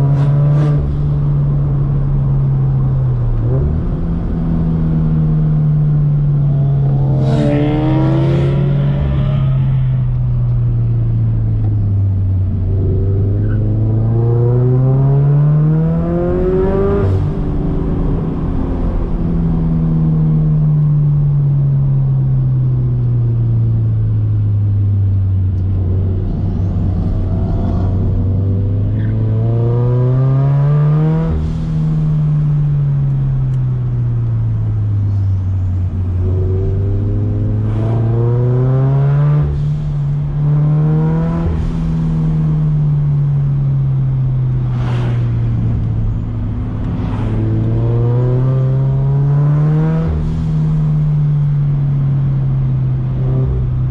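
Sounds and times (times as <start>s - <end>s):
car engine revving: 0.0s - 20.0s, 25.4s - 53.9s.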